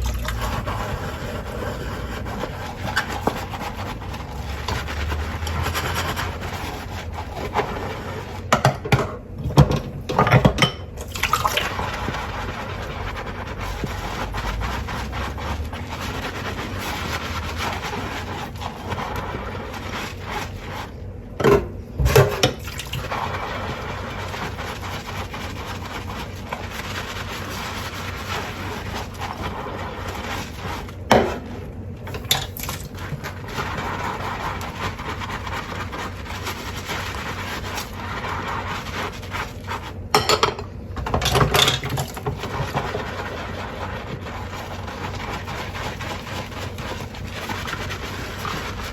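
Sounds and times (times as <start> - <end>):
tap water running: 0.0 - 6.4, 9.5 - 13.1
scrubbing dishes: 0.0 - 48.9
dishes clattering: 40.2 - 42.0.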